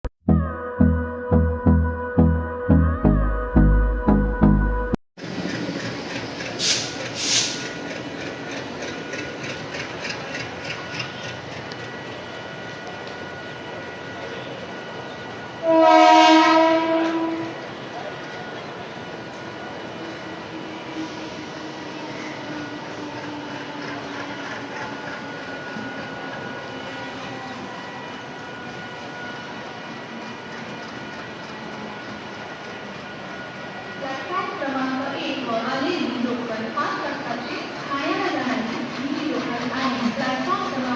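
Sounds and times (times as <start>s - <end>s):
diesel locomotive engine running: 5.2s - 40.9s
short air hisses: 6.6s - 7.8s.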